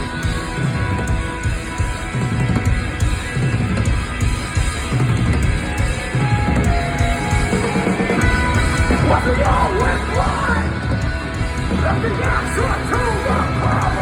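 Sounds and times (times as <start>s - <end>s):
bass guitar: 0.0s - 14.0s
distorted electric guitars: 0.0s - 14.0s
pounding drum kit: 0.0s - 14.0s.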